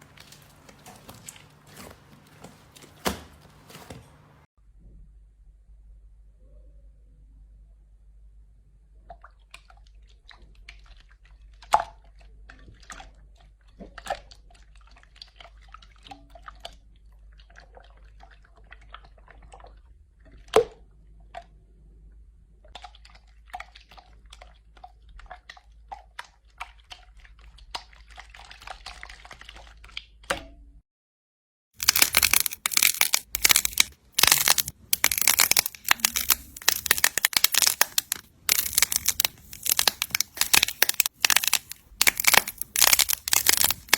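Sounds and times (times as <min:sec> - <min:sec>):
dense crackling and crunching: 0:00.0 - 0:04.5, 0:31.8 - 0:43.9
slime clicks and wet pops: 0:31.8 - 0:43.9.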